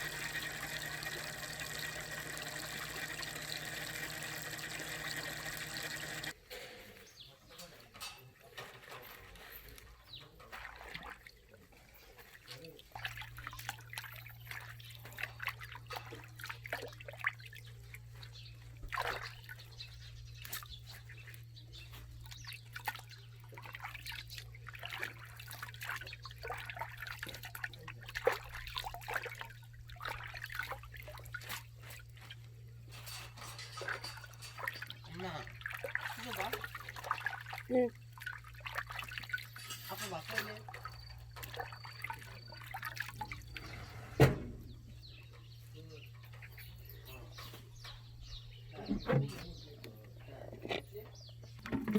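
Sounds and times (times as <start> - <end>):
water trickling and splashing: 10.3 - 44.2.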